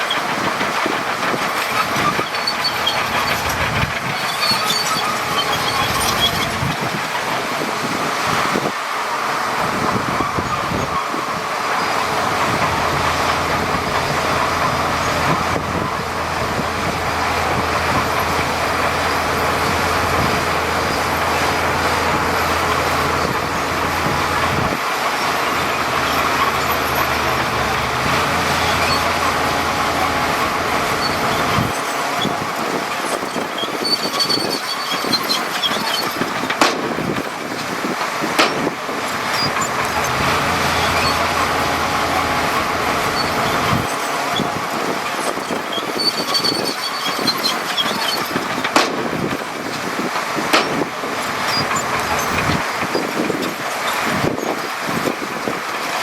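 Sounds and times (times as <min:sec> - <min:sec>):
heavy diesel machinery rumble: 0:00.0 - 0:56.0
sharp knocks: 0:36.5 - 0:37.0, 0:48.7 - 0:49.3, 0:50.5 - 0:50.9.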